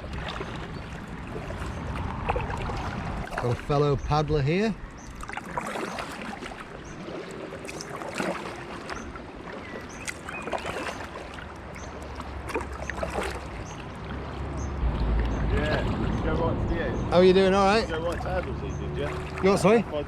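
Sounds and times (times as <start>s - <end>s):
wind rumble on microphone: 0.0s - 5.5s, 13.6s - 19.2s
water slapping against hull: 0.0s - 17.1s, 17.7s - 20.0s
paddles dipping and splashing: 0.0s - 20.0s.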